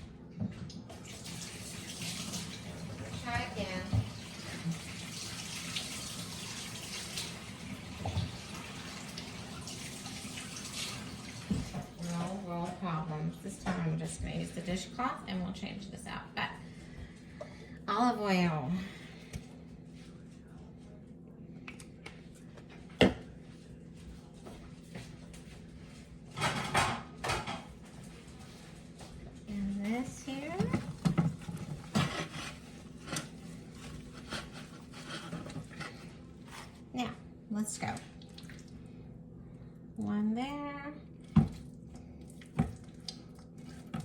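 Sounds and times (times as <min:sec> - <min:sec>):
tap running into sink: 0:03.3 - 0:07.4, 0:10.6 - 0:12.0, 0:30.5 - 0:32.5
low steady hum: 0:11.2 - 0:44.0.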